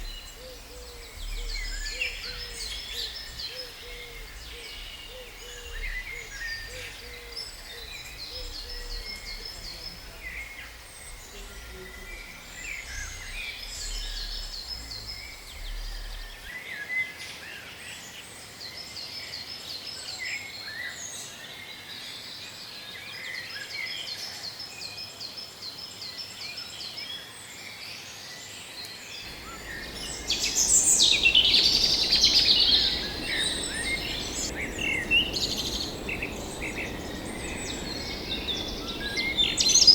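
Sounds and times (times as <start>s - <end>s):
forest birds chirping: 0.0s - 39.9s
close bird calling: 29.3s - 39.9s.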